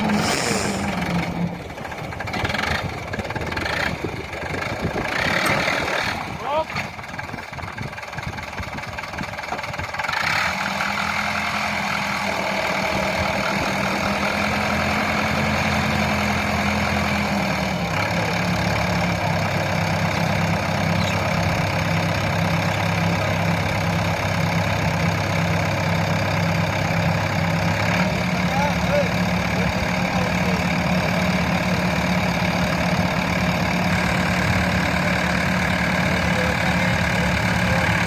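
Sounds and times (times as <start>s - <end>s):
tractor engine running: 0.0s - 38.0s.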